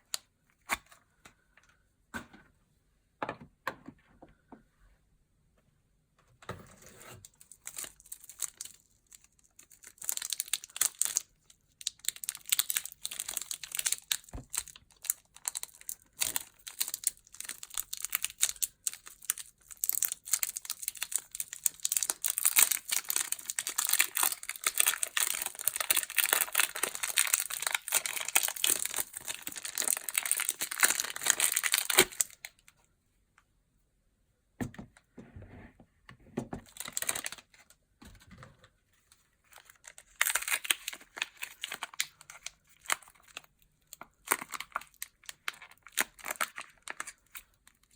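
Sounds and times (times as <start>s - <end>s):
wrappers crinkling and tearing: 7.3s - 32.5s, 36.7s - 37.5s, 39.5s - 47.9s.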